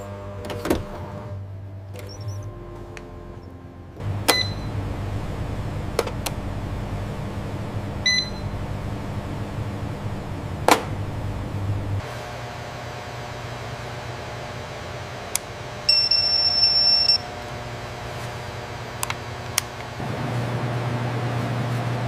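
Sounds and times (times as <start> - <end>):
low machine hum: 0.0 - 22.0
short electronic beep: 4.3 - 4.7, 8.0 - 8.6.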